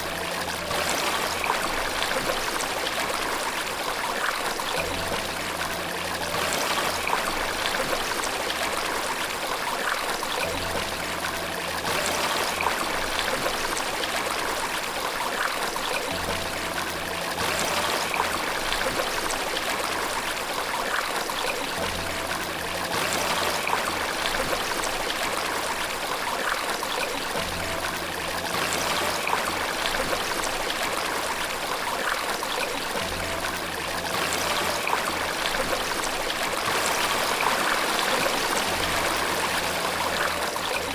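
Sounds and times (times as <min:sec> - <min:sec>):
flowing water rushing: 0:00.0 - 0:40.9.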